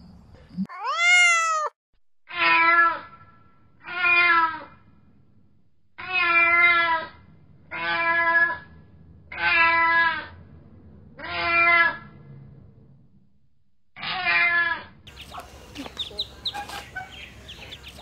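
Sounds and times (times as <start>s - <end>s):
cat meowing: 0.7s - 3.0s, 3.8s - 4.7s, 6.0s - 7.1s
ducklings peeping: 15.1s - 18.0s.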